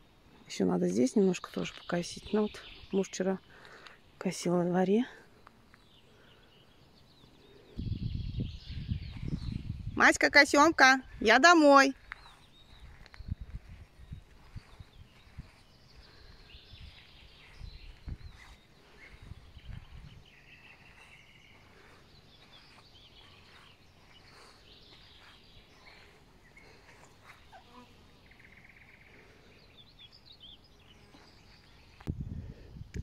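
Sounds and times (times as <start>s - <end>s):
faint songbirds chirping: 0.0s - 33.0s.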